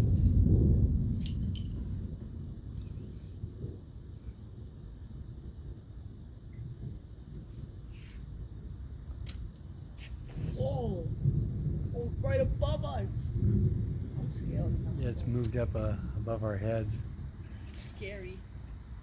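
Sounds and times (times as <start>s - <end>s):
insects trilling: 0.0s - 19.0s
low thunder rumble: 0.0s - 19.0s.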